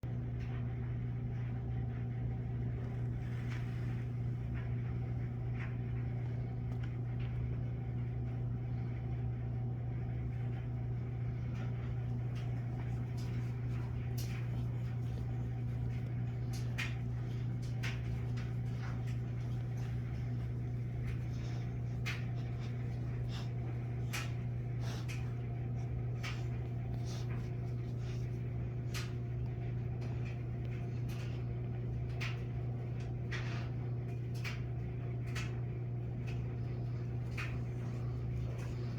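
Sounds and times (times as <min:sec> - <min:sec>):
steady low hum: 0:00.0 - 0:38.9
light clicks and rustles: 0:11.4 - 0:38.9.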